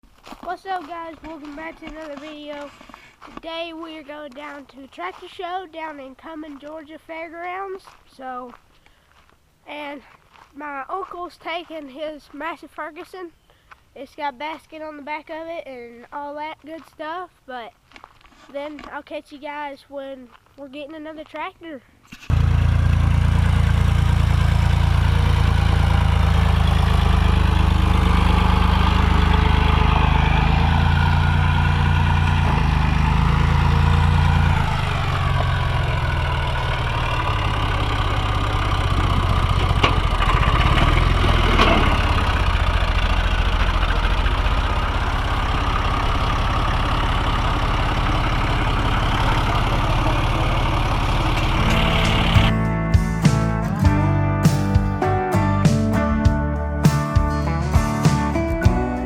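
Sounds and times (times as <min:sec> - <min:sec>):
engine humming: 0:22.3 - 0:59.0.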